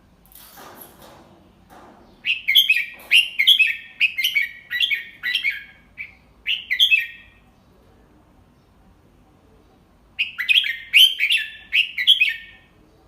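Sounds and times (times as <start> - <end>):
bird whistled song: 2.2 - 7.4, 10.2 - 12.6.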